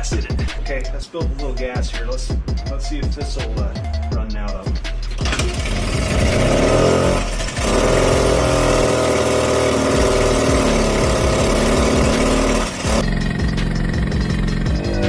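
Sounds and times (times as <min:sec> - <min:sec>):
small two-stroke engine running: 0:05.2 - 0:15.0.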